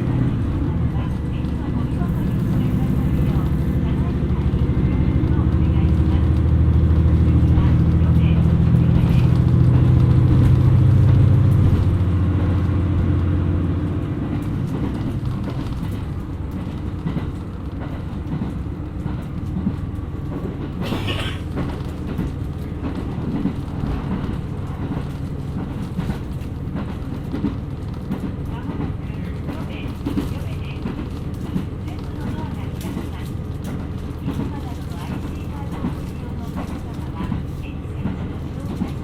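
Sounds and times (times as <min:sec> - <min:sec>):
wheels on rails: 0:00.0 - 0:12.8
diesel engine: 0:00.0 - 0:39.0.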